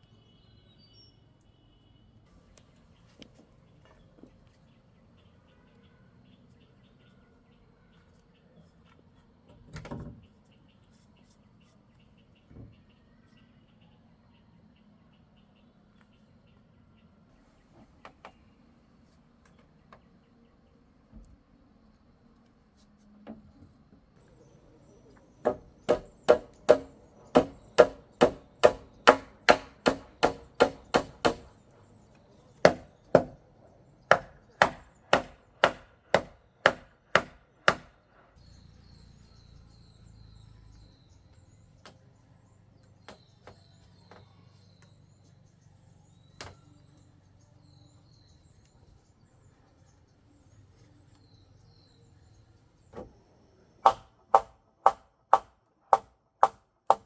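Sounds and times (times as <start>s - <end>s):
hand tool striking wood: 25.4s - 31.5s, 32.6s - 33.4s, 34.1s - 37.9s, 53.8s - 57.0s.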